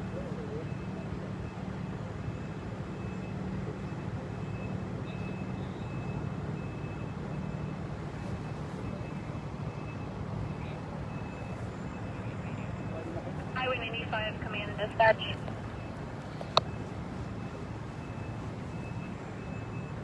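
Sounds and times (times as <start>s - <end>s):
low engine drone: 8.9s - 19.5s.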